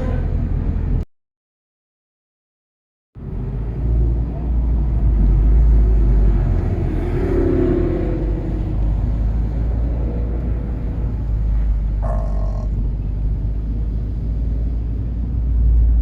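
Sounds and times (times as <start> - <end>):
car engine drone: 3.2 - 16.0
deep rumble: 7.8 - 16.0.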